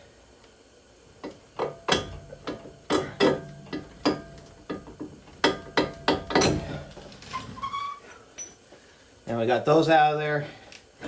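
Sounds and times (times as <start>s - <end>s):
metallic knocks and clanks: 1.2s - 7.6s.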